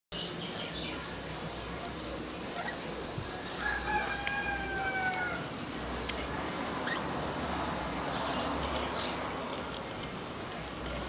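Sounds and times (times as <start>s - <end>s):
bird long crowing call: 3.6s - 5.5s.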